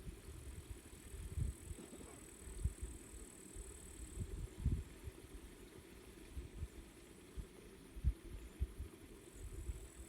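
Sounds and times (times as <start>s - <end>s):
faint steady high hiss: 0.0s - 10.0s
wind buffeting microphone: 4.1s - 5.2s.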